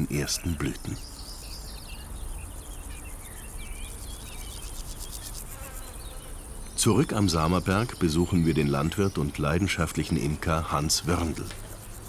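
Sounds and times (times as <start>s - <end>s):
honeybees buzzing: 5.4s - 12.0s.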